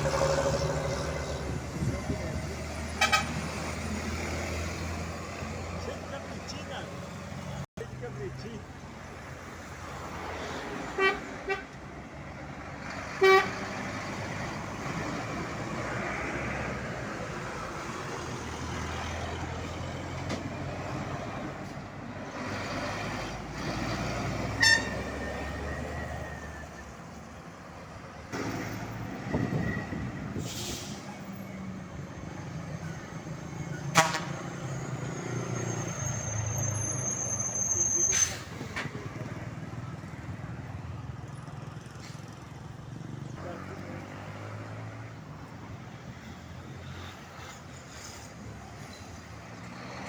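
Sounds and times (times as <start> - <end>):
road traffic: 0.0 - 50.0
vehicle horn short toots: 24.6 - 25.0.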